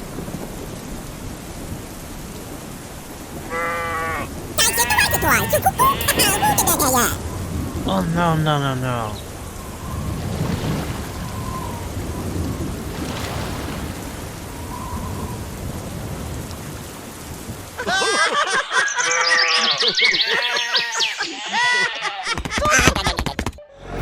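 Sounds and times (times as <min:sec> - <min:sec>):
high squeaky voices chattering: 0:04.6 - 0:07.2.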